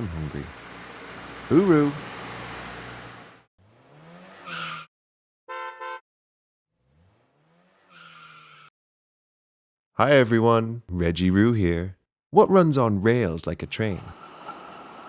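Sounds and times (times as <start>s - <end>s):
car engine revving: 3.6s - 4.8s, 6.8s - 8.5s.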